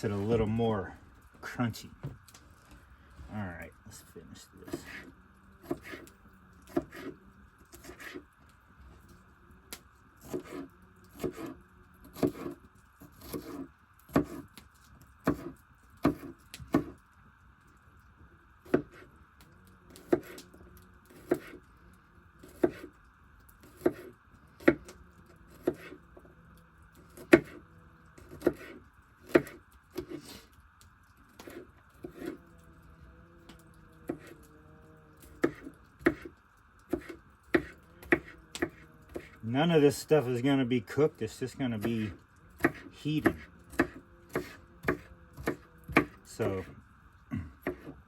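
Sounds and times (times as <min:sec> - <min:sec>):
knife chopping on cutting board: 0:05.6 - 0:06.0, 0:12.2 - 0:12.6, 0:13.2 - 0:14.4, 0:15.2 - 0:17.0, 0:20.0 - 0:20.4, 0:21.2 - 0:21.6, 0:22.4 - 0:22.9, 0:23.7 - 0:24.8, 0:25.5 - 0:26.0, 0:27.2 - 0:27.6, 0:28.2 - 0:30.2, 0:35.4 - 0:36.3, 0:36.9 - 0:39.4, 0:42.6 - 0:46.6, 0:47.6 - 0:47.9.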